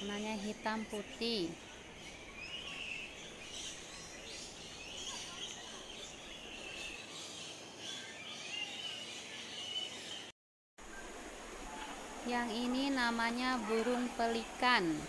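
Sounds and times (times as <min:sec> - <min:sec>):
birds chirping: 0:00.0 - 0:15.0
outdoor hiss: 0:10.8 - 0:15.0.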